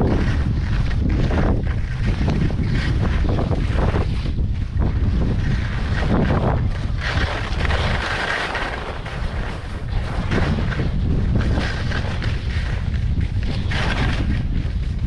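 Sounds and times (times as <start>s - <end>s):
skis sliding over snow: 0.0s - 15.0s
wind buffeting microphone: 0.0s - 15.0s.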